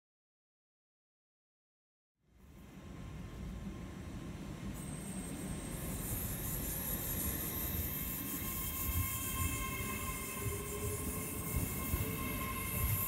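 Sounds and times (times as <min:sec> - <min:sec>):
rumble of wheels on rail: 0:02.6 - 0:13.0
train whine: 0:02.6 - 0:13.0.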